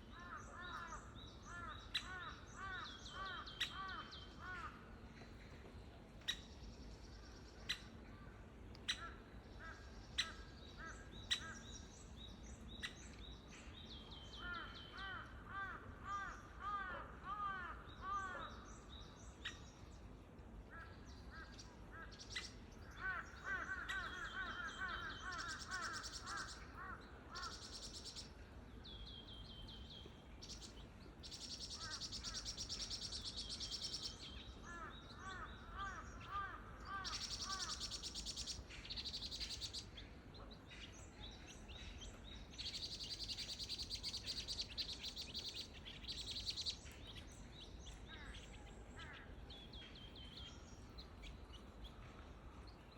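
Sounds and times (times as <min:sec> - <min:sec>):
birds chirping rapidly: 0:28.9 - 0:52.0.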